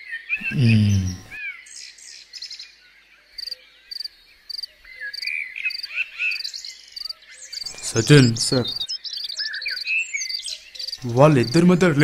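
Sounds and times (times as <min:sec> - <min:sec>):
birds chirping: 0:00.0 - 0:12.0
low falling voice-like sound: 0:00.4 - 0:01.2.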